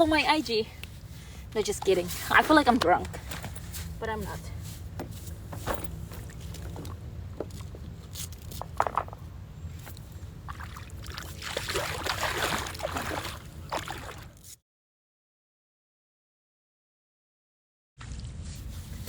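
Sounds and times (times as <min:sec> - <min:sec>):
water splashing around paddle board: 0:10.4 - 0:14.5.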